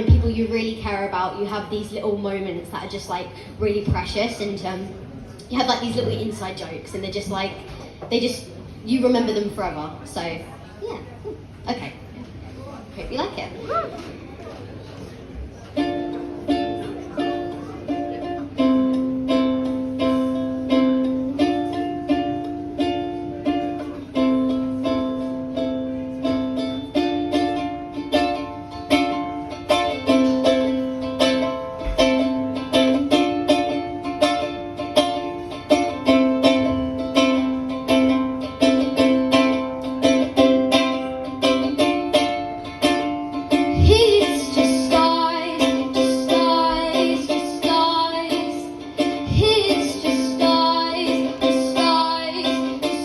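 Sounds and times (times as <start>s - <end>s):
strummed acoustic string chords: 5.5s - 7.3s, 15.7s - 53.0s
person singing: 43.7s - 53.0s.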